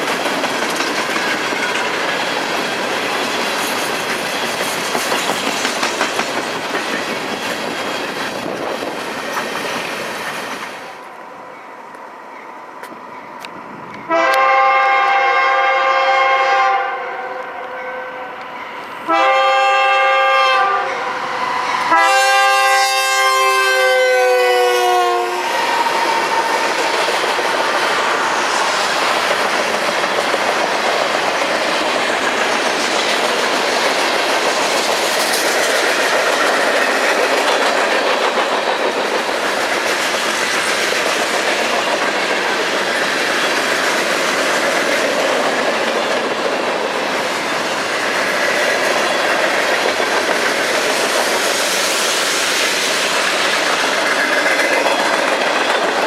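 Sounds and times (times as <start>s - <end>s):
freight cars wheel and rail noise: 0.0s - 56.0s
locomotive air horn: 14.1s - 26.6s.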